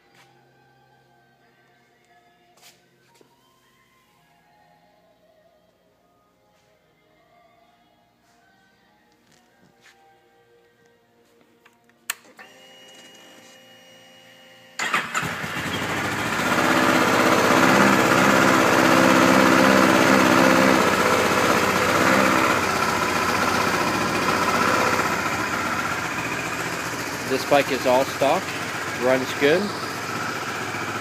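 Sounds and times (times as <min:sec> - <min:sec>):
motorcycle engine starting and running: 0:14.8 - 0:31.0.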